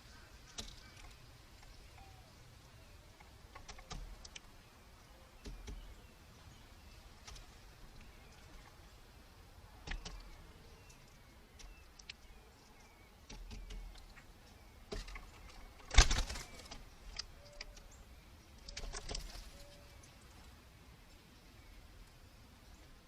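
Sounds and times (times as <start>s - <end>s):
woodpecker tapping: 3.0s - 4.6s, 5.3s - 6.1s, 9.8s - 18.0s.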